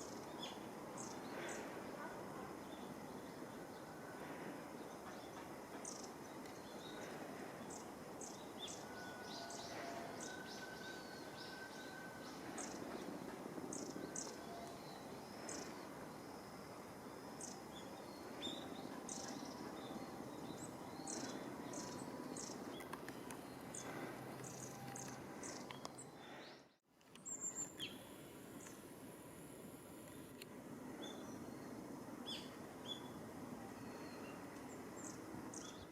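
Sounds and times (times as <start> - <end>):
background hum: 0.0 - 35.9
small birds calling: 17.4 - 28.0.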